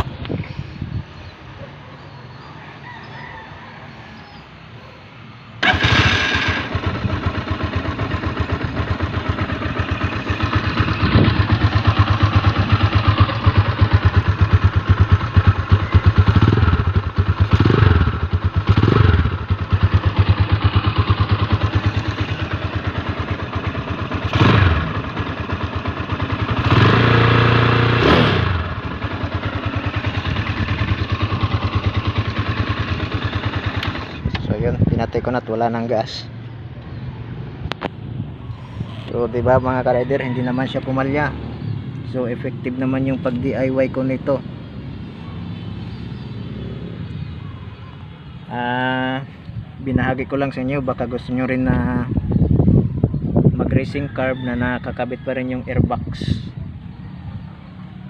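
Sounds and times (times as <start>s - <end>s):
motorcycle engine revving: 5.6s - 49.4s.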